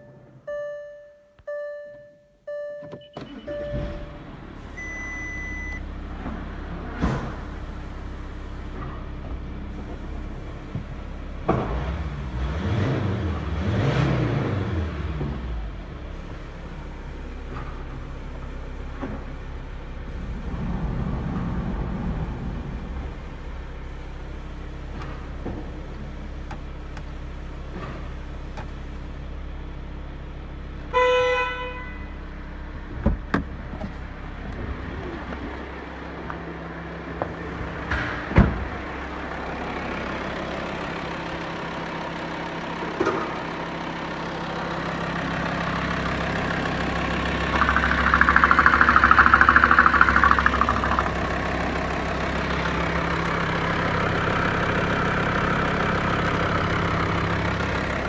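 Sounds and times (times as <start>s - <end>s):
short beep: 0.0s - 5.9s
diesel engine running: 3.4s - 58.0s
loud buzzing: 46.8s - 52.4s
sharp knocks: 47.5s - 51.3s.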